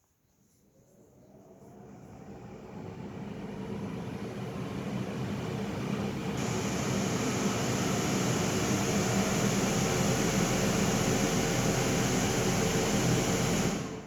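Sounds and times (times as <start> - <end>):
air conditioner loud hiss: 5.3 - 14.0.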